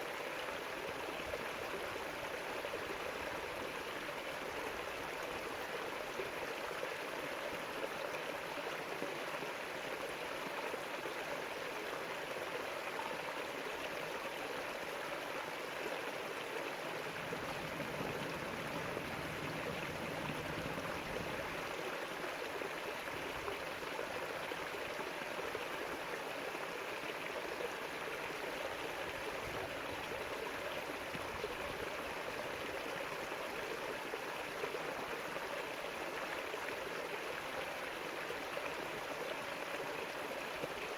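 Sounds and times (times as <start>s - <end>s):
river water flowing over rocks: 0.0s - 40.9s.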